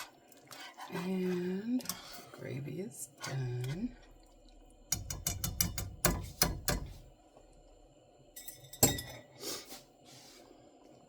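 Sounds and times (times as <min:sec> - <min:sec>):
kitchenware clinking and knocking: 0:08.4 - 0:09.3.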